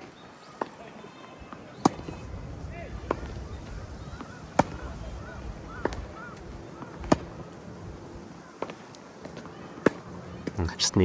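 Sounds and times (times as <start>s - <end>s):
racquet hitting tennis ball: 1.8s - 2.2s, 4.2s - 5.0s, 5.7s - 7.5s
wind rumble on microphone: 2.2s - 6.6s
bird calling: 3.4s - 7.6s.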